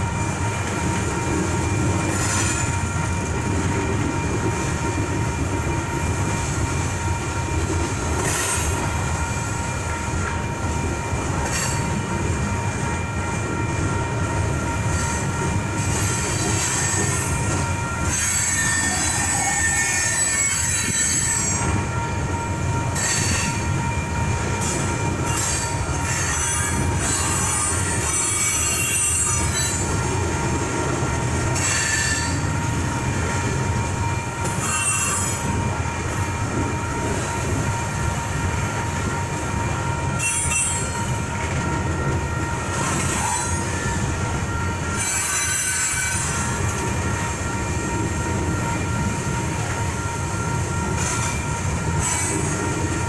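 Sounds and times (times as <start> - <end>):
crossing bell ringing: 0.0 - 53.0
train wheels rumbling on rail: 0.0 - 53.0
high-pitched wheel squeal: 18.0 - 21.7, 31.6 - 32.5.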